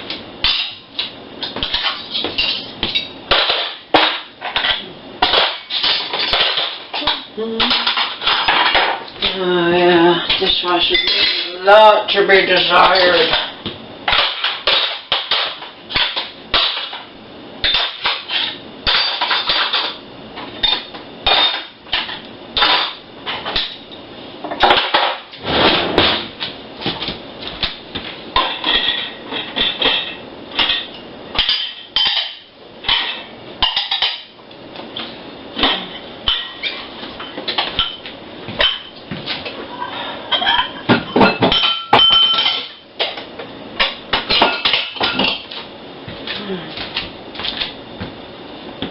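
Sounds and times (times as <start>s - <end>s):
dishes and cutlery clinking: 1.4s - 9.1s, 10.3s - 11.6s, 28.4s - 34.3s, 35.6s - 38.0s, 39.7s - 43.2s, 43.8s - 45.5s.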